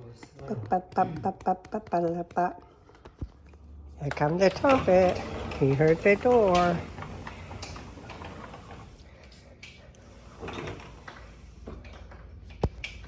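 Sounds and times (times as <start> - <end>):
door scraping: 4.4 - 9.0.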